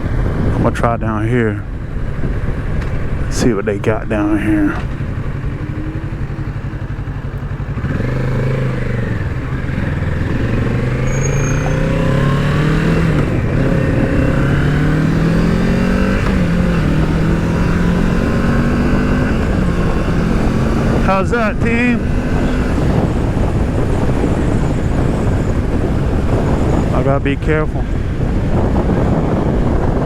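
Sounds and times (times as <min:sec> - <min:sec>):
motorcycle engine accelerating: 0:01.6 - 0:30.0.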